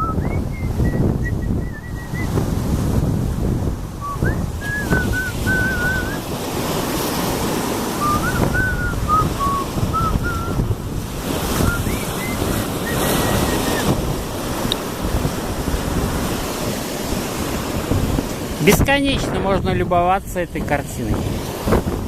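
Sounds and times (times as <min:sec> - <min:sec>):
thin wavering whistle: 0:00.0 - 0:02.4, 0:04.0 - 0:06.3, 0:08.0 - 0:10.7, 0:11.5 - 0:13.9
sea waves washing on shore: 0:00.0 - 0:22.0
wind buffeting microphone: 0:00.0 - 0:22.0.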